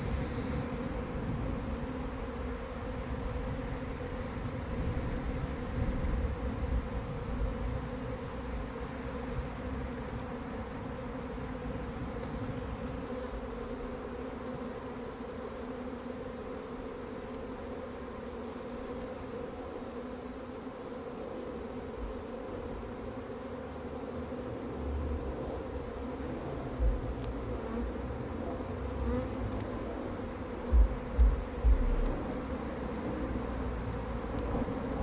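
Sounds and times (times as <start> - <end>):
honeybees buzzing: 0.0 - 35.0.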